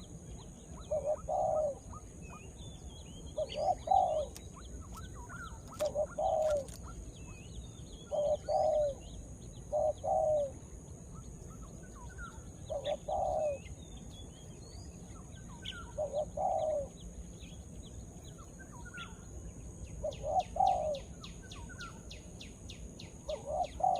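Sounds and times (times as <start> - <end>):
small birds chirping: 0.0 - 23.9
dove cooing: 0.8 - 2.0, 3.3 - 7.0, 8.1 - 10.6, 12.1 - 13.7, 15.5 - 17.0, 20.0 - 21.2, 23.3 - 23.9.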